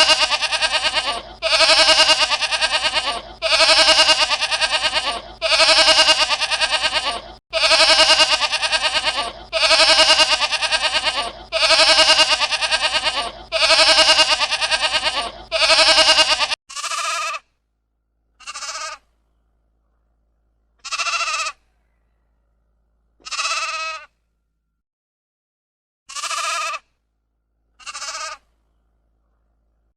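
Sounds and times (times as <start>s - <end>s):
quavering bleating calls: 0.0s - 17.5s, 18.4s - 19.0s, 20.8s - 21.6s, 23.2s - 24.1s, 26.1s - 26.9s, 27.8s - 28.5s.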